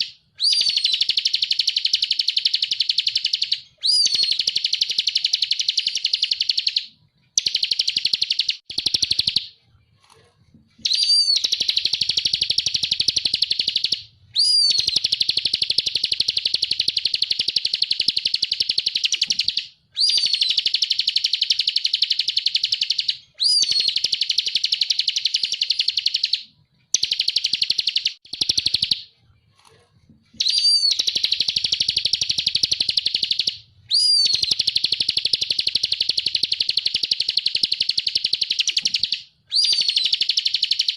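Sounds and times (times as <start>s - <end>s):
bird singing buzzy trills: 10.8s - 26.4s, 30.4s - 40.9s.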